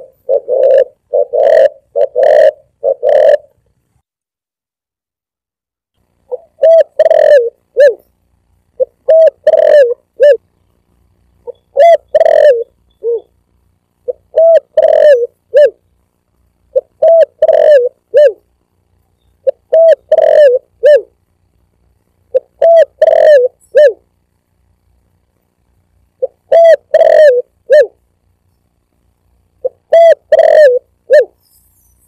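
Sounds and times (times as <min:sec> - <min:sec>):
dove cooing: 0:00.0 - 0:03.6, 0:06.3 - 0:08.1, 0:08.8 - 0:10.4, 0:11.4 - 0:13.4, 0:14.0 - 0:15.8, 0:16.7 - 0:18.5, 0:19.4 - 0:21.2, 0:22.3 - 0:24.1, 0:26.2 - 0:28.0, 0:29.6 - 0:31.6.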